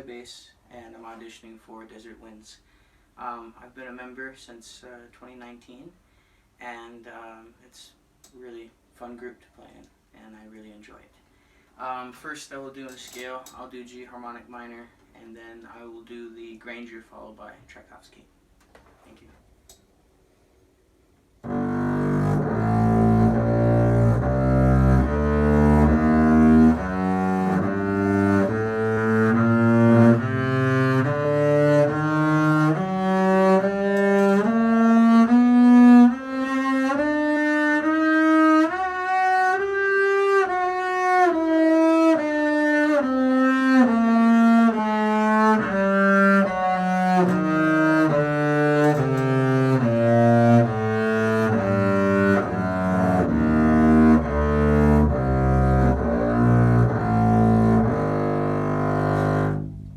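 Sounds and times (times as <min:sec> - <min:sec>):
bowed double bass scale: 0:21.4 - 0:59.9.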